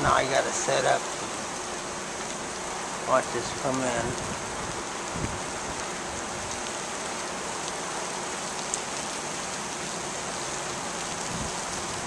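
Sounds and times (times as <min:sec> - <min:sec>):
rain falling: 0:00.0 - 0:12.0
raindrop ticks: 0:06.5 - 0:07.8, 0:08.5 - 0:09.9.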